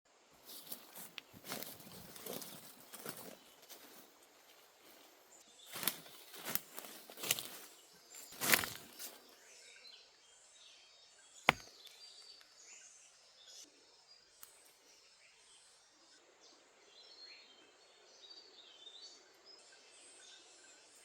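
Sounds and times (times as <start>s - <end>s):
chopping wood: 11.5s - 11.8s.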